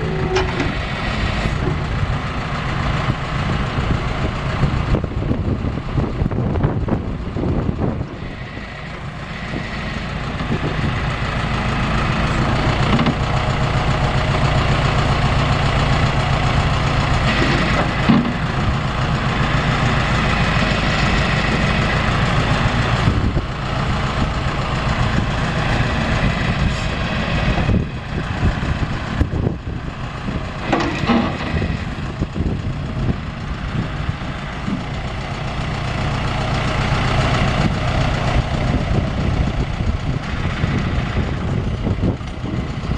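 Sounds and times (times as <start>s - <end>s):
backhoe engine running: 0.0s - 42.9s
short clunks: 17.3s - 18.5s, 30.6s - 31.6s.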